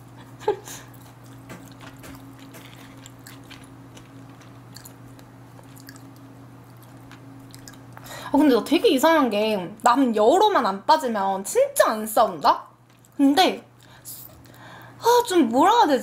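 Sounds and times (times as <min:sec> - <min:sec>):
steady low hum: 0:00.0 - 0:16.0
person chewing food: 0:00.4 - 0:08.1
small mouth clicks: 0:04.7 - 0:08.1.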